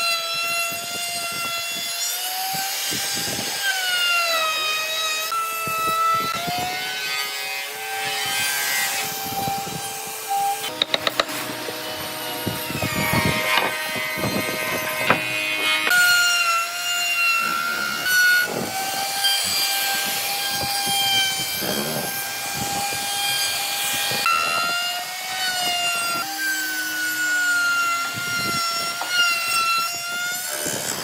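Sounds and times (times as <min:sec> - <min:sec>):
power tool motor whining: 0:00.0 - 0:31.0
rasping cutting strokes: 0:00.0 - 0:31.0.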